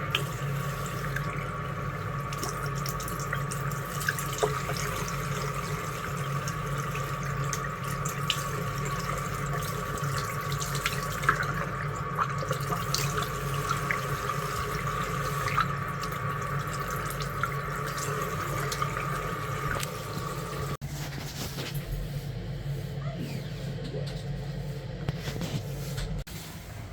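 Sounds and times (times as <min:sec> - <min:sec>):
water running from tap: 0:00.0 - 0:20.8.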